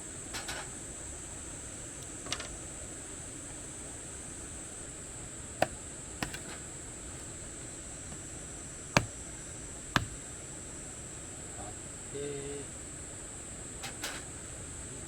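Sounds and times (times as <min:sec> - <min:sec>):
firewood chopping knocks: 0:05.6 - 0:06.6, 0:08.9 - 0:09.2, 0:09.9 - 0:10.3.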